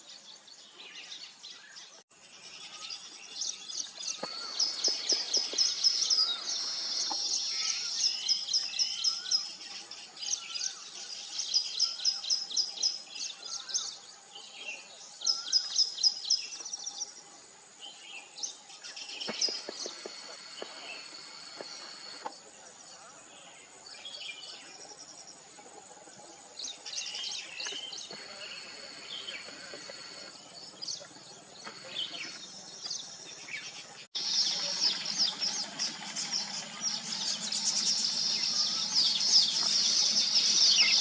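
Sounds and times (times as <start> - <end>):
birds chirping rapidly: 1.0 - 14.0, 26.6 - 41.0
lower wavering bird calls: 2.7 - 9.6, 34.2 - 41.0.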